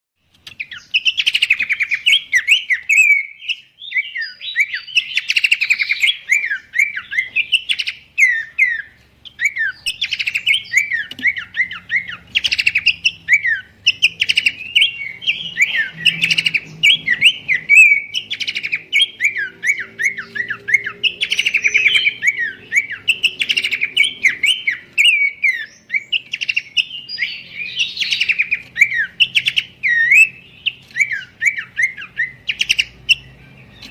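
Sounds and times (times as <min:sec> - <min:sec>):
bird chirping quick high notes: 0:09.4 - 0:33.9.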